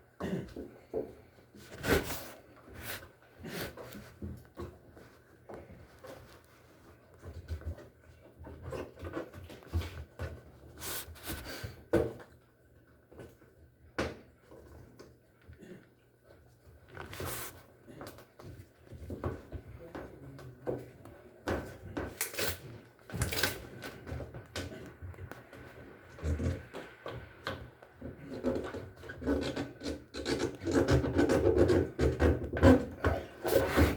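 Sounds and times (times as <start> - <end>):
objects knocking and clattering: 18.0 - 33.9.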